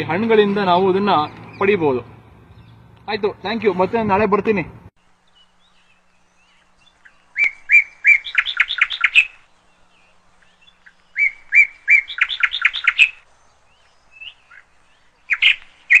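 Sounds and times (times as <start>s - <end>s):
bird singing whistled notes: 5.2s - 16.0s.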